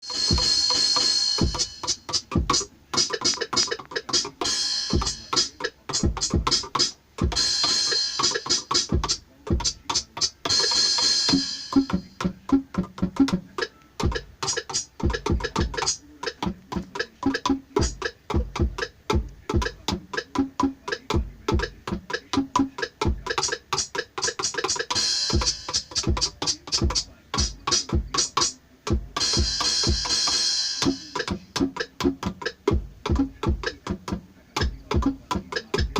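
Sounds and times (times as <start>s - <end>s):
electronic drum hits: 0.1s - 9.8s.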